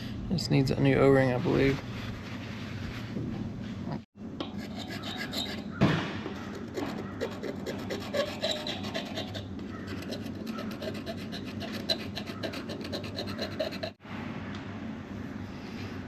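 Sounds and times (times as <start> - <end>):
rapid rasping and rubbing: 4.5 - 5.8, 6.4 - 14.0.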